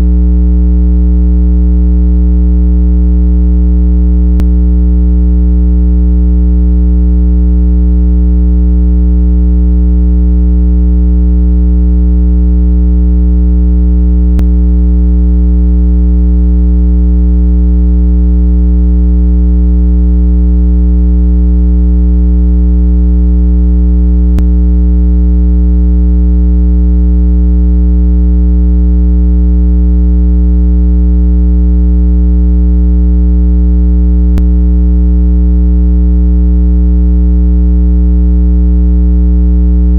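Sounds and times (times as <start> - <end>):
low electronic tone: 0.0 - 18.7, 22.1 - 26.2, 34.2 - 34.9.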